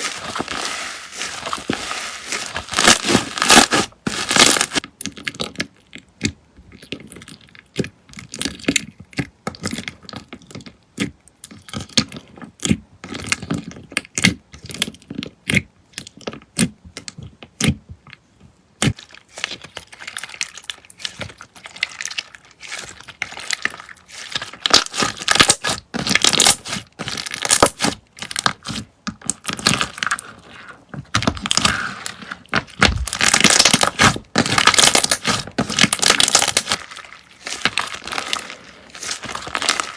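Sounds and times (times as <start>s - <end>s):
slime squished by hand: 0.0s - 4.8s, 31.1s - 39.9s.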